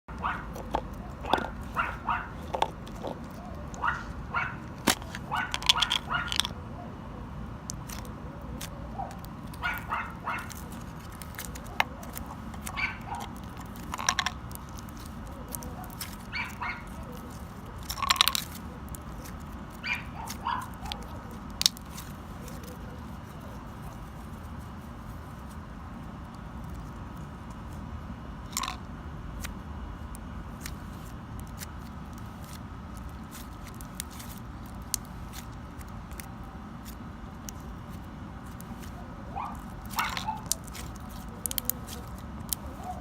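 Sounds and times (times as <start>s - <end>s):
slime crackling and squishing: 0.1s - 6.5s, 7.7s - 28.8s, 29.4s - 43.0s
dog barking and yelping: 0.1s - 7.0s, 8.8s - 10.8s, 11.6s - 13.4s, 15.3s - 17.4s, 19.7s - 21.4s, 39.0s - 40.8s, 42.7s - 43.0s.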